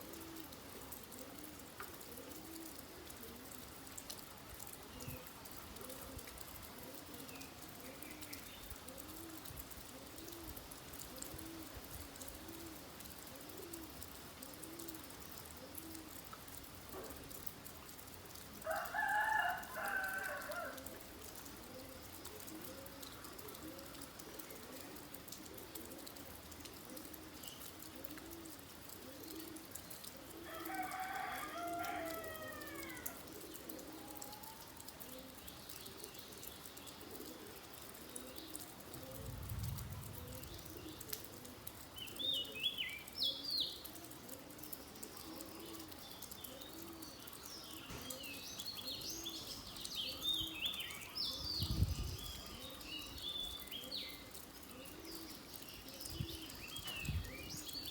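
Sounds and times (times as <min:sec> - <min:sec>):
steady rain: 0:00.0 - 0:57.9
rooster crowing: 0:18.7 - 0:20.8, 0:30.5 - 0:33.2
soft low bird calls: 0:32.7 - 0:51.5
small birds chirping: 0:33.5 - 0:57.9.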